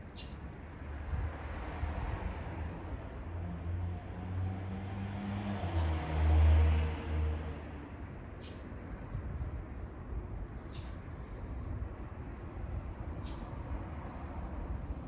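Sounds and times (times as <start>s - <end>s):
passing vehicle engine drone: 3.4s - 7.8s.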